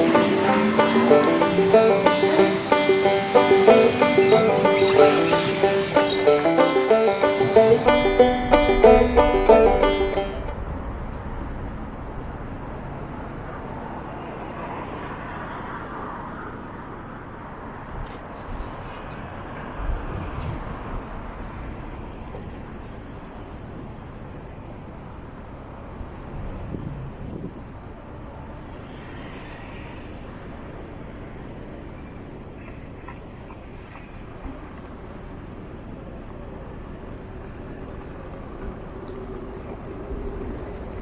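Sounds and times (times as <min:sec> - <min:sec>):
city road traffic rumble: 0:00.0 - 0:16.1.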